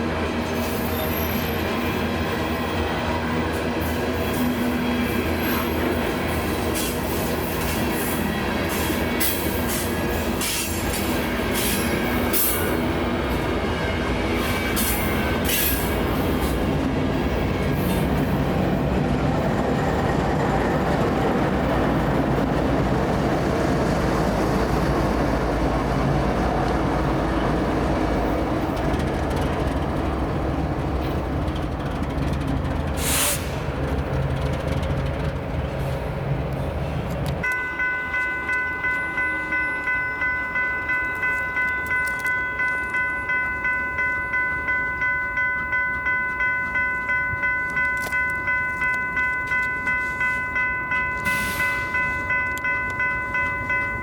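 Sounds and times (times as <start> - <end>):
freight train rumbling past: 0.0 - 54.0
wheels clacking over rail joints: 14.2 - 39.3
pulsing bell ringing: 37.4 - 54.0.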